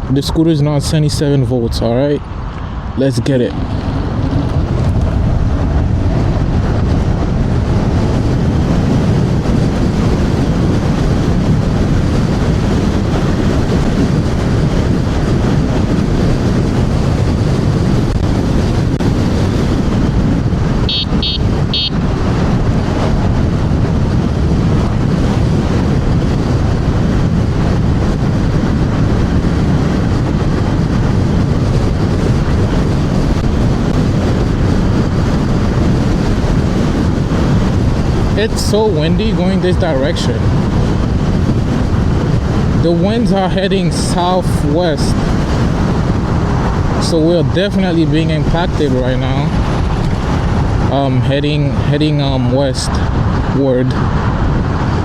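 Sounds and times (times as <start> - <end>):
wind buffeting microphone: 0.0 - 55.0
short high beeps: 20.9 - 22.0.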